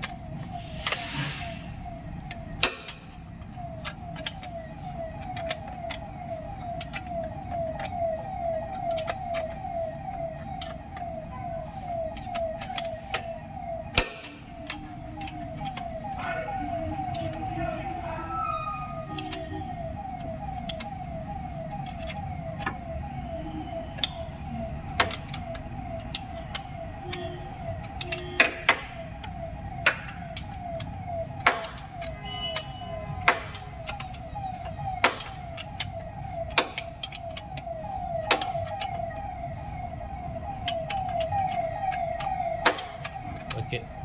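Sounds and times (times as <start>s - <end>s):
metallic clicks of hand tools: 2.3s - 4.6s, 27.9s - 28.8s.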